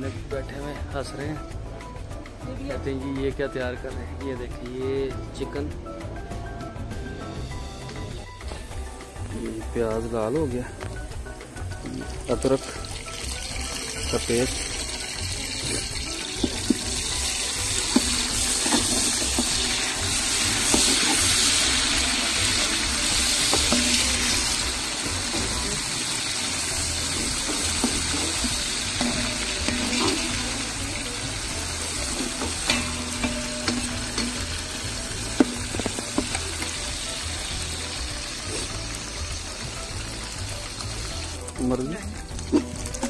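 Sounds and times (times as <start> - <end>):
onions sizzling in hot oil: 8.2 - 43.0
metal ladle scraping pot: 14.6 - 25.4, 26.3 - 36.8, 42.4 - 43.0.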